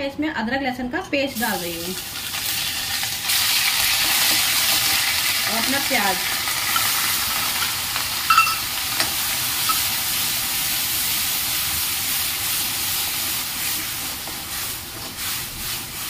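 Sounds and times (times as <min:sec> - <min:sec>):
paste sizzling in hot oil: 0:01.4 - 0:16.0
metal ladle clinking against pan: 0:08.3 - 0:09.1.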